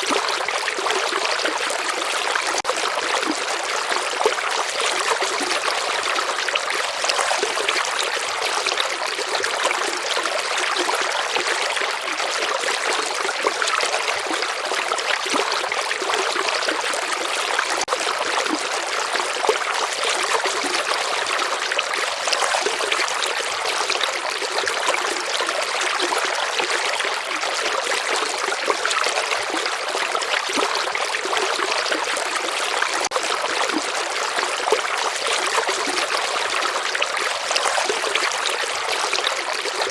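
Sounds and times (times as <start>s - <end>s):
river flowing: 13.0s - 27.4s.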